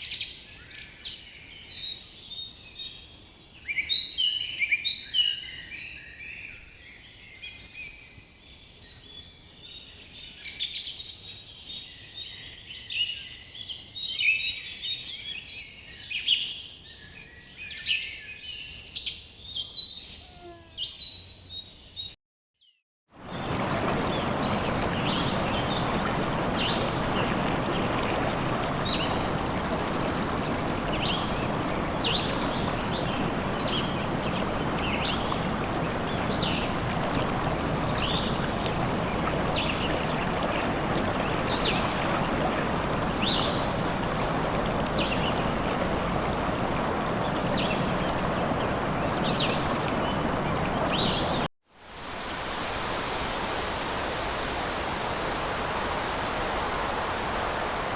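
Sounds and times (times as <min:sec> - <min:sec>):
running water: 0:23.2 - 0:57.9
steady rushing noise: 0:23.3 - 0:57.9
small birds chirping: 0:23.4 - 0:51.5.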